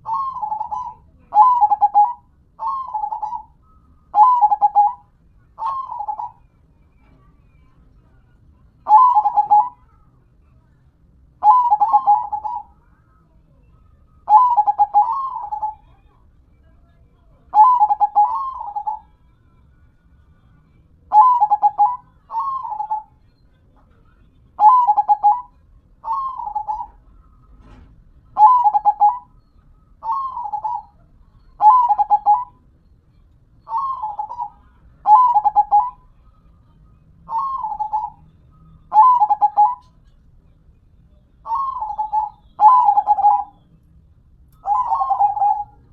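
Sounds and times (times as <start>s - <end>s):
dove cooing: 0.0s - 6.5s, 8.8s - 9.9s, 11.4s - 12.8s, 14.3s - 16.0s, 17.5s - 19.1s, 21.1s - 23.1s, 24.6s - 27.8s, 28.4s - 29.3s, 30.0s - 32.6s, 33.6s - 36.1s, 37.3s - 38.2s, 38.9s - 40.2s, 41.4s - 43.6s, 44.6s - 45.9s.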